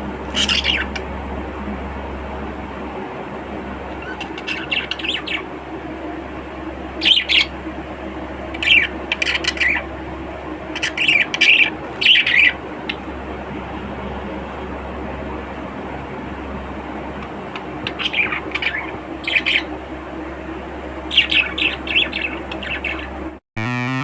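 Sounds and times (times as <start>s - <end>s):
steady background hum: 0.0s - 24.0s
budgerigars chirping: 0.3s - 1.0s, 4.0s - 5.4s, 7.0s - 7.5s, 8.5s - 9.8s, 10.8s - 13.0s, 17.8s - 19.7s, 21.1s - 23.1s.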